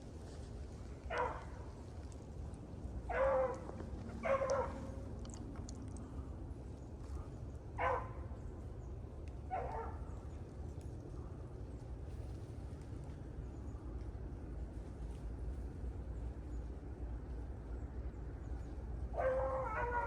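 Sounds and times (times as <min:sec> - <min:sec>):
dog baying and barking: 0:03.1 - 0:05.0, 0:19.2 - 0:20.0.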